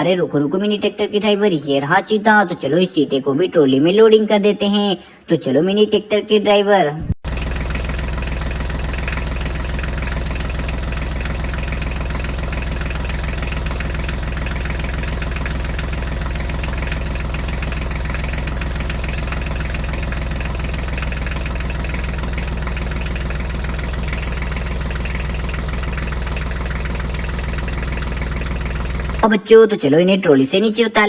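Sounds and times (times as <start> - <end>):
tractor engine idling: 7.2 - 30.4.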